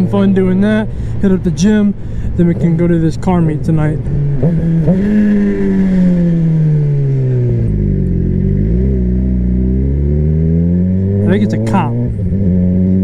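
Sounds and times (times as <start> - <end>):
low rumble: 0.0 - 12.5
motorcycle engine revving: 2.8 - 13.0.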